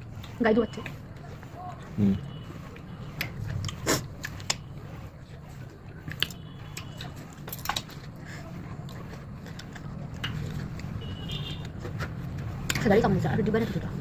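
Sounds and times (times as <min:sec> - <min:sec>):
person chewing crunchy fruit: 0:00.0 - 0:11.0.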